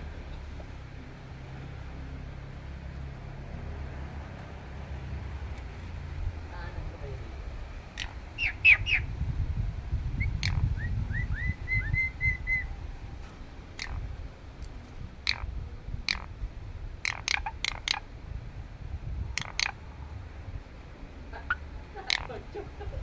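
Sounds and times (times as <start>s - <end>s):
starling whistling and chirping: 8.0s - 9.1s, 10.2s - 12.8s.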